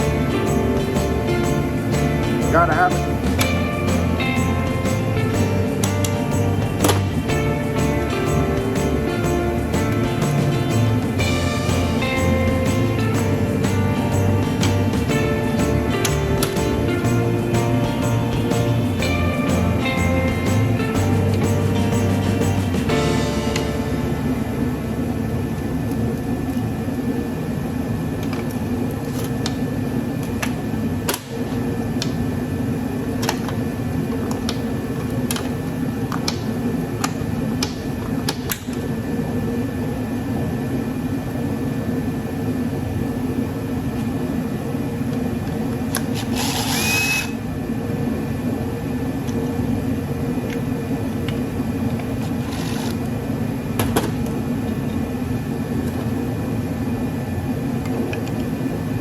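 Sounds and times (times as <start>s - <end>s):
heater humming: 0.0s - 28.8s.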